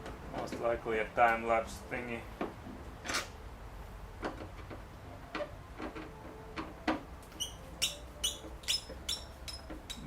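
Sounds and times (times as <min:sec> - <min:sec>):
hand tools clicking on metal: 0:07.3 - 0:10.0.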